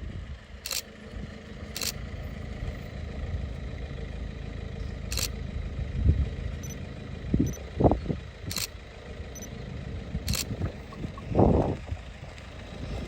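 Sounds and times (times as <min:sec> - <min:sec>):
vehicle engine rumbling: 0:00.0 - 0:13.0
sharp clicks: 0:00.6 - 0:00.9, 0:01.8 - 0:02.0, 0:05.1 - 0:05.4, 0:08.5 - 0:08.8, 0:10.3 - 0:10.6.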